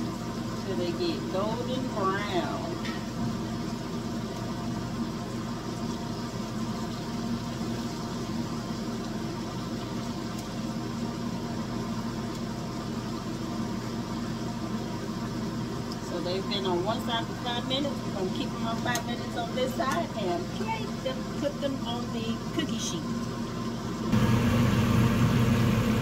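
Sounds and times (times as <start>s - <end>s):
food sizzling in hot oil: 0.0s - 26.0s
low hum: 24.0s - 26.0s.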